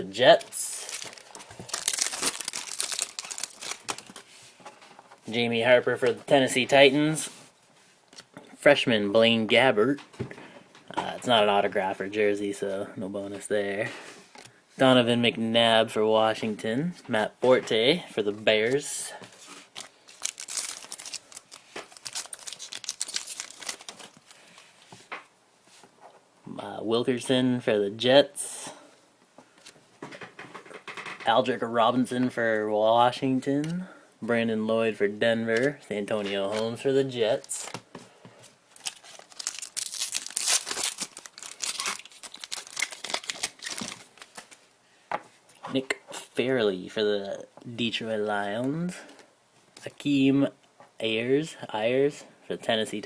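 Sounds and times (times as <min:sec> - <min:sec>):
cards and packaging crinkling: 0:00.2 - 0:04.8, 0:18.7 - 0:25.1, 0:35.6 - 0:44.7.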